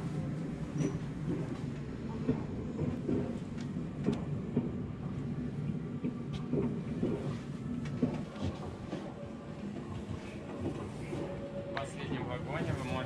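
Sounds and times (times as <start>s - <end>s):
train rumble: 0.0s - 13.0s
railway cars clanking: 0.6s - 4.8s.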